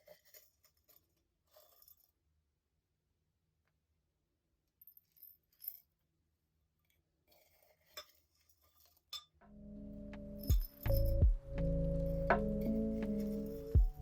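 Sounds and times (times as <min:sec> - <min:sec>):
soft ambient music: 0:09.4 - 0:14.0.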